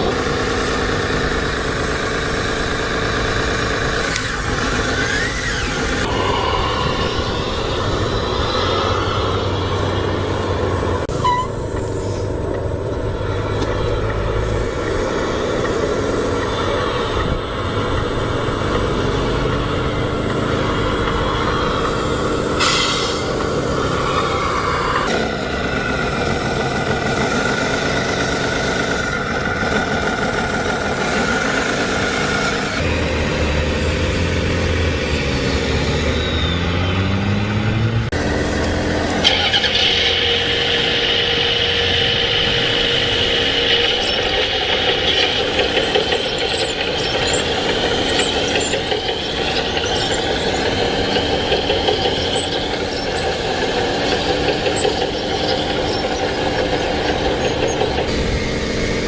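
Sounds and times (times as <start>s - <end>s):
toy motors and gearboxes whining: 0.0s - 59.0s.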